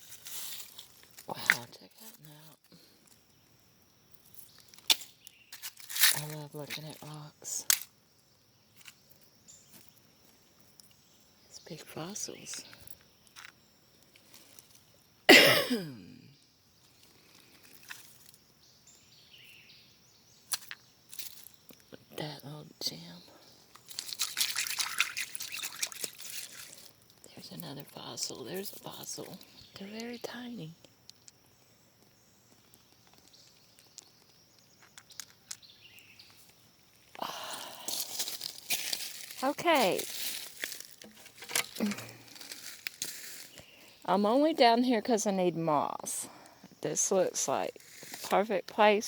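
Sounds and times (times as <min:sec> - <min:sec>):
rustling and crunching: 0:00.0 - 0:03.2, 0:04.1 - 0:07.9, 0:16.8 - 0:18.4, 0:20.5 - 0:21.9, 0:23.7 - 0:27.9, 0:30.9 - 0:44.0, 0:47.7 - 0:48.4
person coughing: 0:15.3 - 0:16.2.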